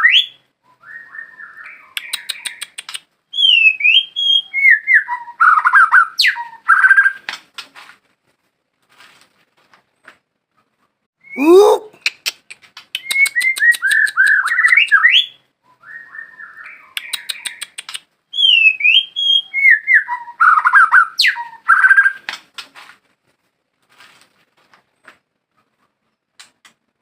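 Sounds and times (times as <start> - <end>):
bird singing whistled phrases: 0.0 - 7.2, 13.0 - 22.2.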